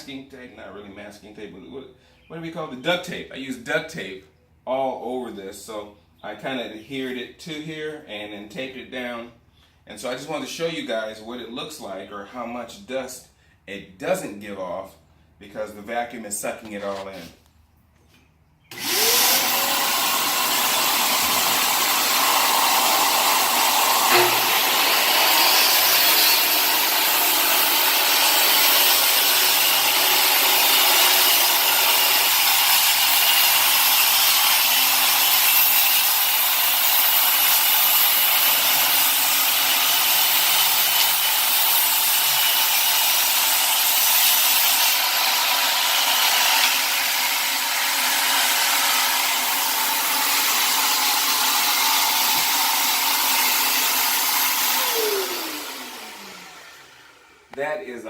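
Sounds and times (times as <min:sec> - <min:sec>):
circular saw and vacuum hum: 0:18.7 - 0:30.4, 0:51.6 - 0:58.0.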